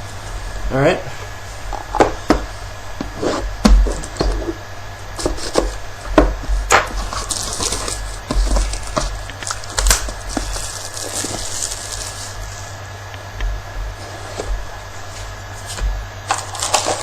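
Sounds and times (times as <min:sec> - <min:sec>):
box handling knocks and clicks: 0:05.2 - 0:11.5
plastic wrap tearing and crinkling: 0:06.7 - 0:12.7, 0:15.6 - 0:17.0.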